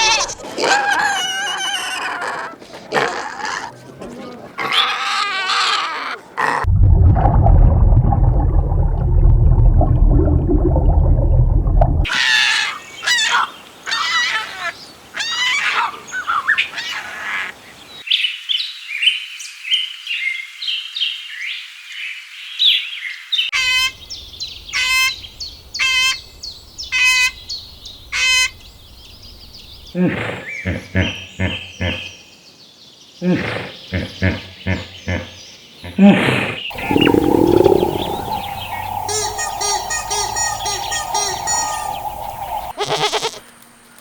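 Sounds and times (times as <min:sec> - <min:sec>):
loud low-pitched sound: 0:06.7 - 0:12.1
birds chirping: 0:36.7 - 0:43.4
repeated call: 0:38.5 - 0:43.3.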